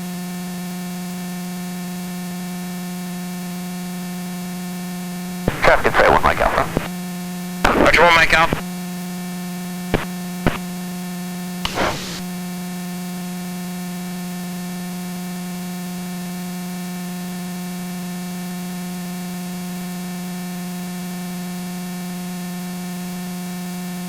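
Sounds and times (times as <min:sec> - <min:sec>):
burst of radio noise: 0:05.5 - 0:06.9, 0:07.6 - 0:08.6, 0:10.0 - 0:10.6, 0:11.7 - 0:12.3
radio intercom hum with hiss: 0:05.5 - 0:06.9, 0:07.6 - 0:08.6, 0:09.9 - 0:10.6, 0:11.7 - 0:12.3.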